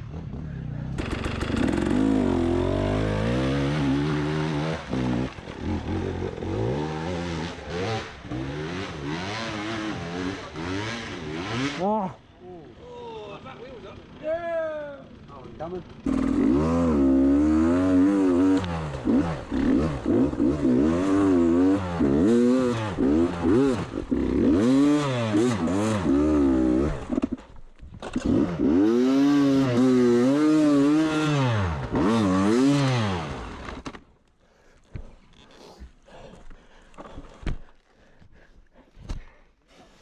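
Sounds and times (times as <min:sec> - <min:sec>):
dirt bike engine revving: 0:00.0 - 0:12.2, 0:15.0 - 0:33.9.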